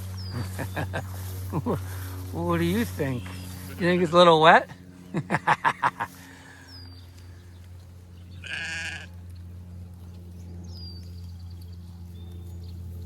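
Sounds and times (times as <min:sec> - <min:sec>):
steady low hum: 0:00.0 - 0:13.0
sheep bleating: 0:03.2 - 0:04.5, 0:08.3 - 0:09.2.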